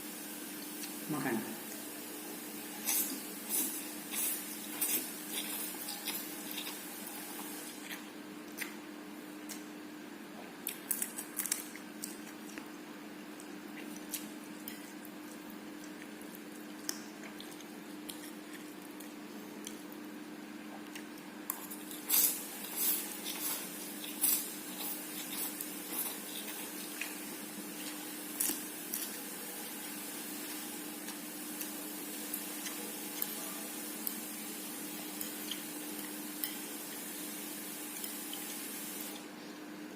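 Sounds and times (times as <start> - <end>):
person chewing and slurping: 2.6 - 8.8, 20.8 - 29.3.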